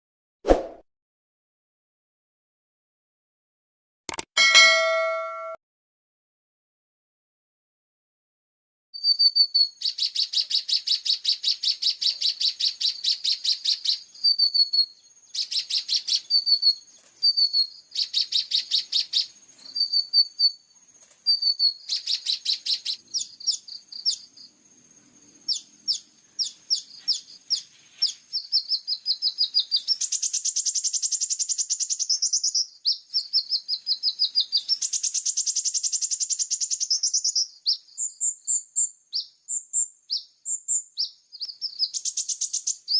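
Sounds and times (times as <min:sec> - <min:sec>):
bird singing with rattling trills: 0:09.0 - 0:20.6, 0:21.2 - 0:24.5, 0:25.4 - 0:42.9.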